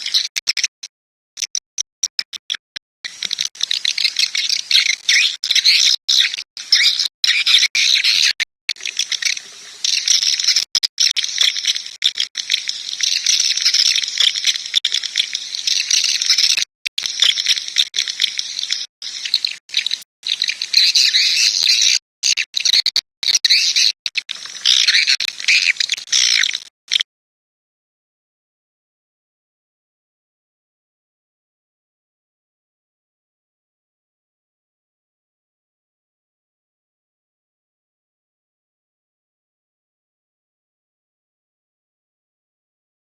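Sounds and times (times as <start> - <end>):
swiftlets chirping and twittering: 0.0 - 27.0.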